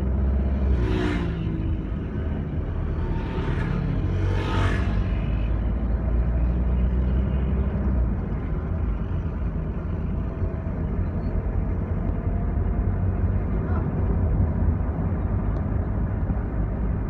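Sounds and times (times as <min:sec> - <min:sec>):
rushing whoosh: 0:00.8 - 0:05.6.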